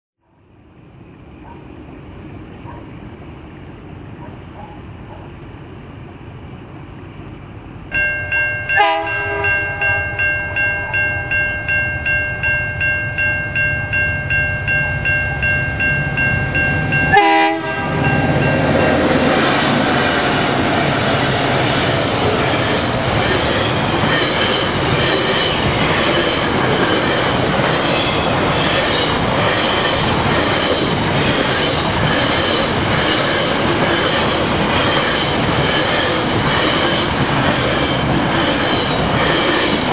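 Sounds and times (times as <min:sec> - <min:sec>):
freight train passing: 0:00.2 - 0:39.9
level crossing bells ringing: 0:07.9 - 0:19.4
locomotive horn blasts: 0:08.7 - 0:10.2, 0:17.1 - 0:18.2.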